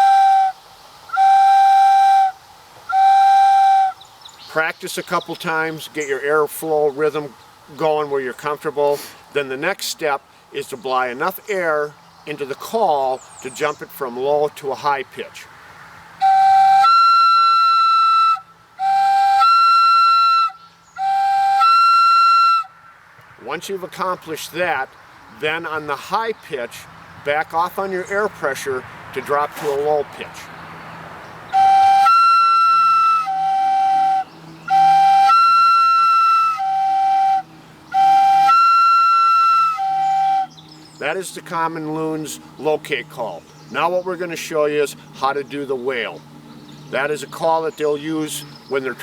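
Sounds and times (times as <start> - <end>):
loon call whistle: 0.0 - 4.1, 16.2 - 22.8, 31.5 - 40.6.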